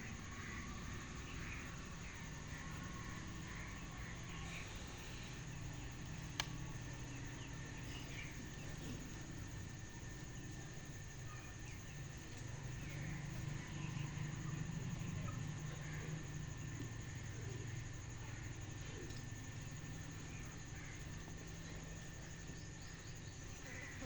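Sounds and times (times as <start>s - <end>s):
low steady hum: 0.0s - 24.0s
soft bird chirps: 1.0s - 17.9s
sharp click: 6.3s - 6.6s.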